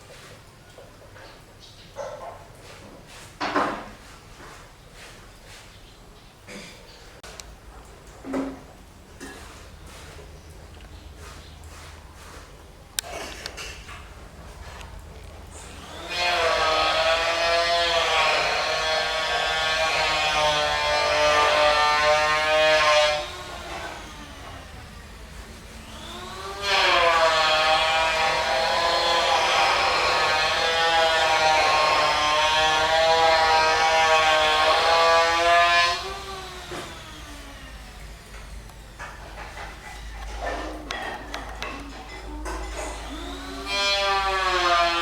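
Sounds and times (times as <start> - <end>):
hair dryer running: 15.6 - 17.5, 18.2 - 38.4, 43.0 - 45.0
motor winding down: 15.7 - 38.2, 43.0 - 45.0.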